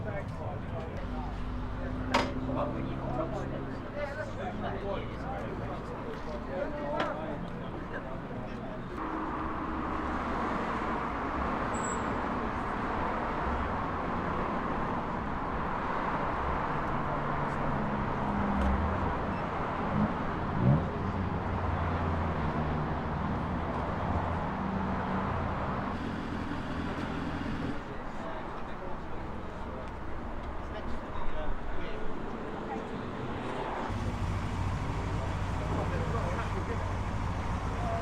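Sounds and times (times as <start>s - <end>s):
vehicle engines idling: 0.0s - 38.0s
engine revving: 18.0s - 27.8s, 33.8s - 38.0s.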